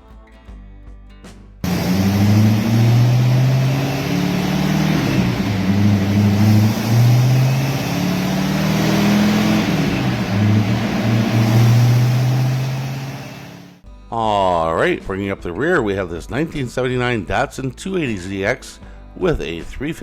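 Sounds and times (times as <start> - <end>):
car engine revving lightly: 1.6 - 13.8.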